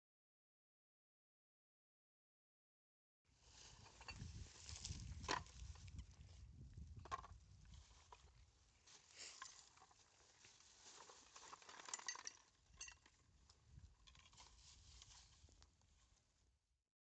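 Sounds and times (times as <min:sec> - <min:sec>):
light clicks and clinks: 0:03.8 - 0:06.0, 0:11.0 - 0:15.6
faint rustling: 0:07.6 - 0:12.1, 0:13.5 - 0:16.3.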